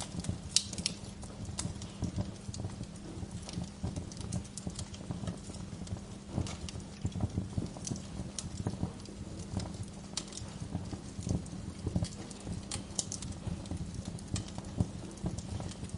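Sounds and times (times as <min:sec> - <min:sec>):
bonfire logs crackling and popping: 0:00.0 - 0:15.9
low fire rumble: 0:00.0 - 0:15.9.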